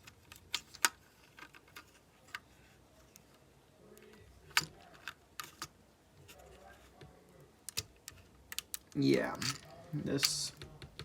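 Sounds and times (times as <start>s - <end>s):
sharp clicks and taps: 10.2s - 11.0s.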